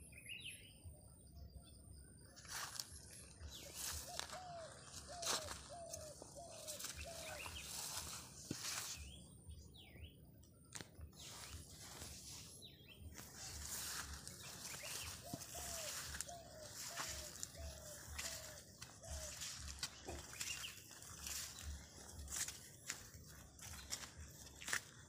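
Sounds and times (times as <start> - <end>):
higher bird chirps: 11.2 - 25.0.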